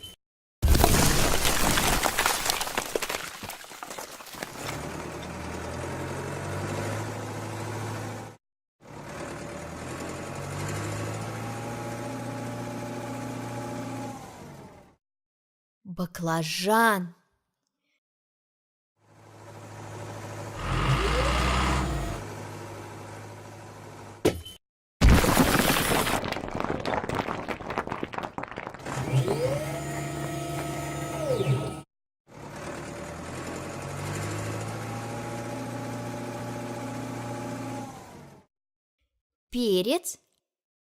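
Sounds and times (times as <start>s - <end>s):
breaking crash: 0.6s - 4.8s, 25.0s - 28.7s
cartoon vehicle engine: 19.2s - 23.5s, 28.9s - 34.8s.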